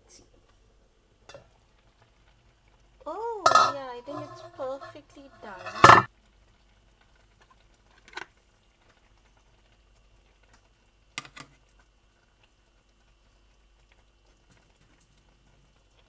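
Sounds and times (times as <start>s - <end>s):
utensil tapping a pan: 3.5s - 6.1s.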